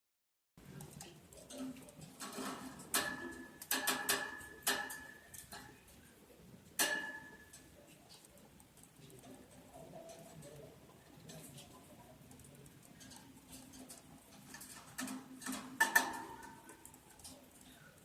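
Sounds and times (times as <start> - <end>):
faint scratching and rustling: 0.6 - 18.0
sharp taps on metal cage: 1.5 - 5.7, 6.8 - 7.7, 13.0 - 17.2.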